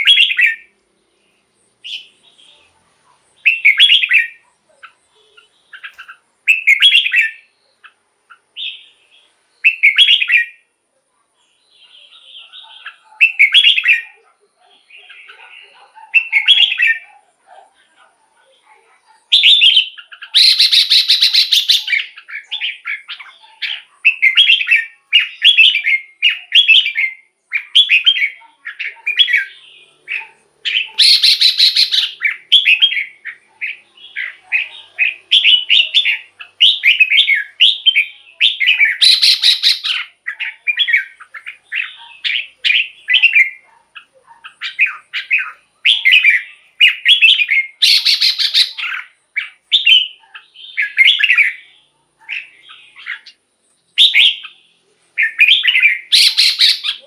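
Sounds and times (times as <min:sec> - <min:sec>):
bird singing whistled phrases: 0:00.0 - 0:00.7, 0:03.4 - 0:04.4, 0:05.3 - 0:07.5, 0:09.6 - 0:10.6, 0:11.9 - 0:14.2, 0:16.2 - 0:17.0, 0:19.3 - 0:43.6, 0:44.6 - 0:51.7, 0:54.0 - 0:54.6, 0:55.2 - 0:57.0
harsh buzzy bird calls: 0:19.1 - 0:57.0.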